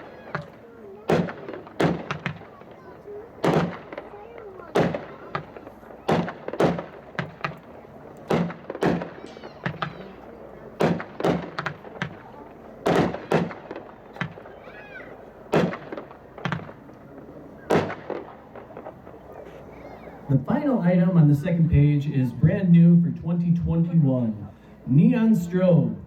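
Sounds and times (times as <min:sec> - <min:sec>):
firework shot bangs: 0:00.0 - 0:19.3.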